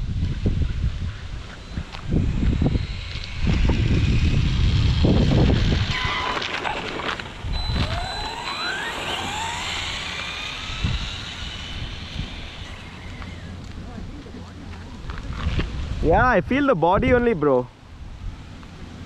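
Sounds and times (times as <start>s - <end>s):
wind rumbling on microphone: 0.0s - 19.0s
electric motor whining: 1.4s - 15.6s.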